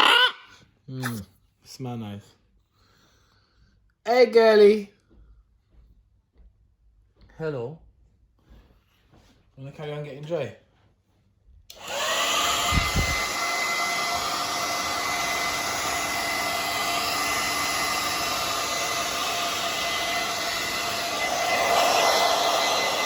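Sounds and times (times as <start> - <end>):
hair dryer running: 11.7 - 23.0.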